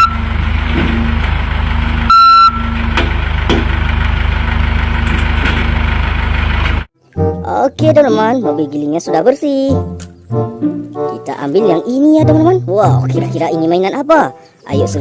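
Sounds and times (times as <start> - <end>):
heavy vehicle engine idling: 0.0 - 6.9
reversing alarm beep: 2.1 - 2.7.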